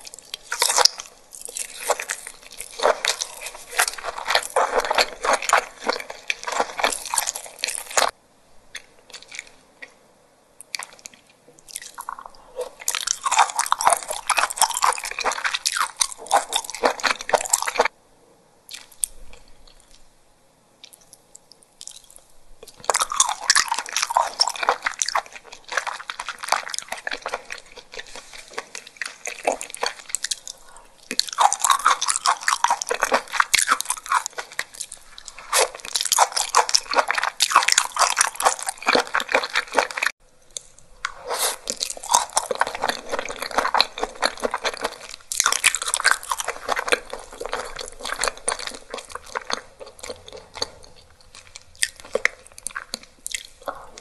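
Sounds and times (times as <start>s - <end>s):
crisp crunching: 0.0s - 8.1s, 22.8s - 54.0s
wet chewing: 0.0s - 10.0s, 10.6s - 17.9s, 20.8s - 54.0s.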